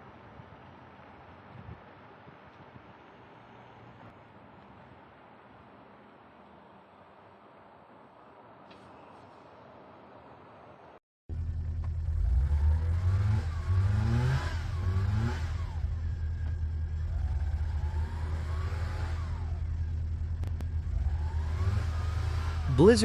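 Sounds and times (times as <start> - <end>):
car engine revving: 11.3 - 23.0.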